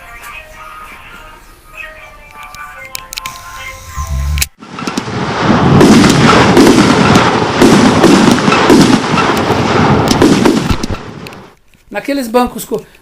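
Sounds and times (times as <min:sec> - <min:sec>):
dense crackling and popping: 0:03.2 - 0:12.7.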